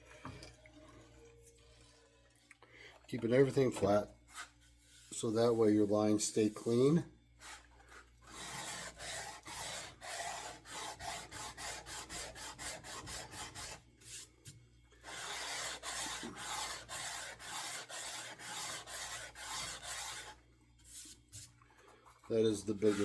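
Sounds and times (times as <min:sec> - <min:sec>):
sanding plane rubbing wood: 0:08.3 - 0:14.2, 0:15.0 - 0:20.4, 0:22.3 - 0:23.0.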